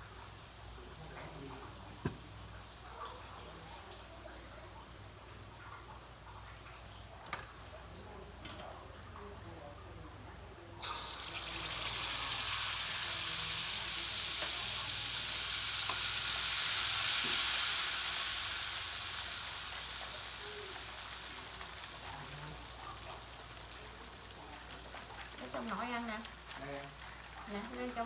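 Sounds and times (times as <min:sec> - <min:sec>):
batter sizzling in hot oil: 0:10.8 - 0:28.0.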